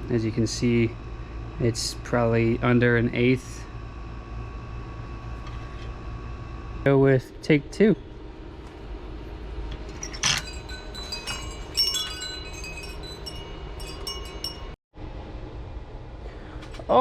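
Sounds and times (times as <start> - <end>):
chimes ringing: 9.9 - 14.8.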